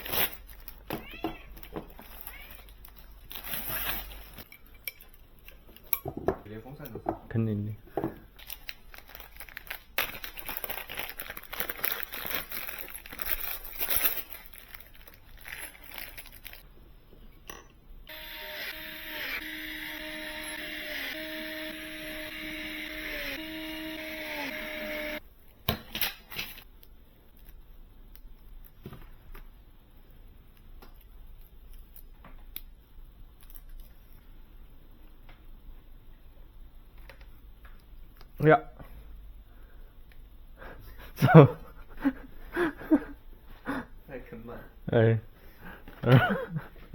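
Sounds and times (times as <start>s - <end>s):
packaging crinkling: 0.0s - 0.9s, 1.9s - 4.4s, 8.4s - 16.6s.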